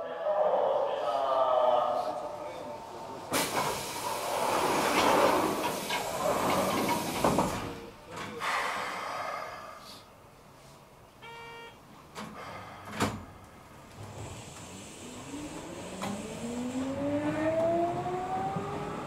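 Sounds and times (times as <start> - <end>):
sliding doors closing: 2.8 - 8.5, 12.1 - 19.0
short buzzer: 11.2 - 11.8
traction motor rising whine: 14.5 - 19.0.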